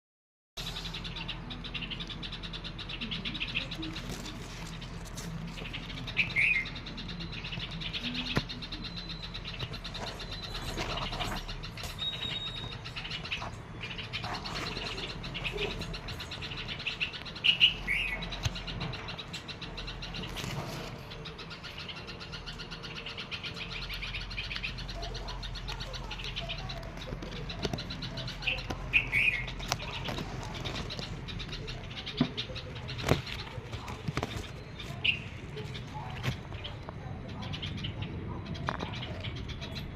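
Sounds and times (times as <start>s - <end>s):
baby birds chirping: 0.6s - 39.9s.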